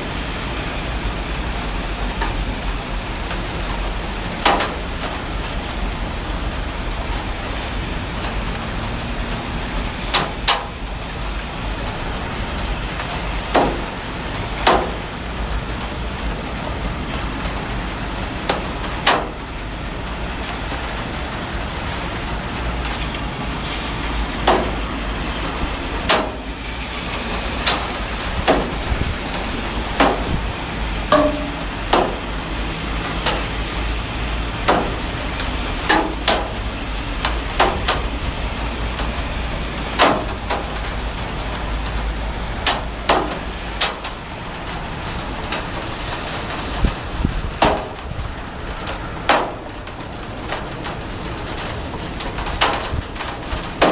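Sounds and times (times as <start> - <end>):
heavy rain falling: 0.0 - 53.9
drops tapping a hard surface: 31.1 - 32.2.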